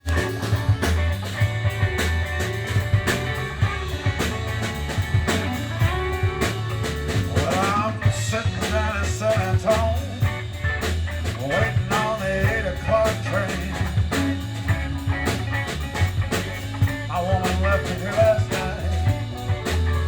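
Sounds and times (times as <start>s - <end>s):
lead guitar bending notes: 0.0s - 9.5s
live rock band playing: 0.0s - 20.0s.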